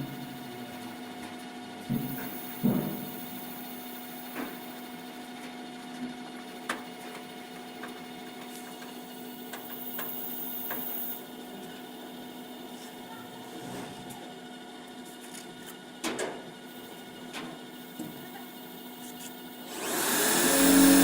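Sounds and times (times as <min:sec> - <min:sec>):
machine hum with tones: 0:16.7 - 0:21.0.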